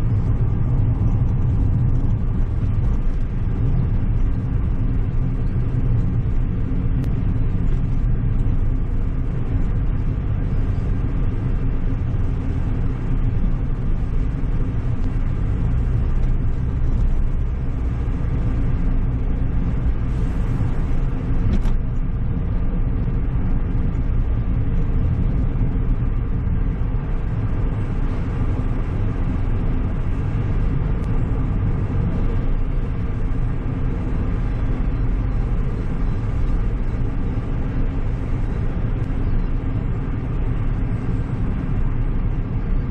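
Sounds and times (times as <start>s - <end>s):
car engine and tyre noise: 0.0s - 42.9s.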